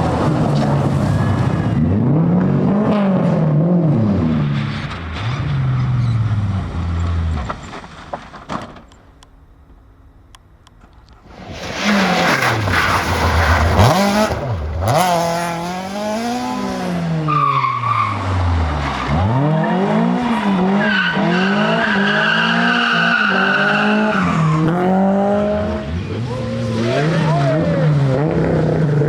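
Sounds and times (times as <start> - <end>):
rally car engine revving: 0.0 - 8.1, 11.2 - 29.0.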